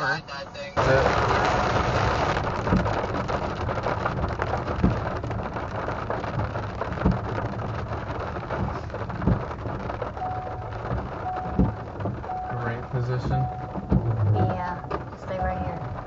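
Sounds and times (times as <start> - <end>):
rain pattering on vehicle: 0.0 - 16.0
dull thump: 13.3 - 15.8.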